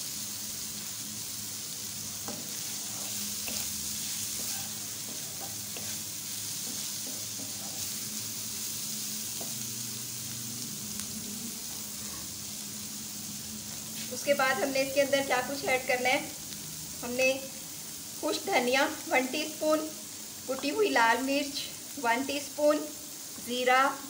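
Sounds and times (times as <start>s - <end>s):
food sizzling in oil: 0.0s - 24.0s
spatula scraping and tapping pan: 2.2s - 8.0s, 9.4s - 9.6s.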